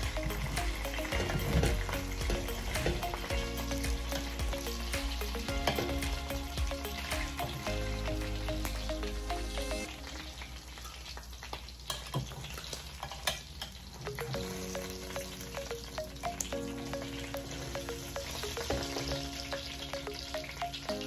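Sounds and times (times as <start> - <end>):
meat sizzling in hot oil: 0.0 - 21.0
metal tongs clinking on pan: 10.8 - 14.9.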